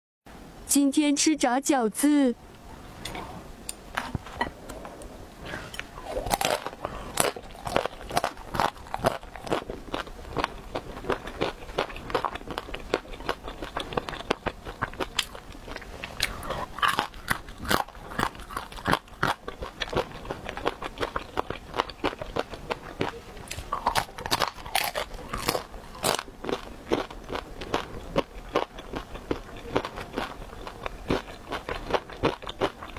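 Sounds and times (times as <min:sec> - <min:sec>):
chewing crispy food crunches: 0:06.0 - 0:32.9.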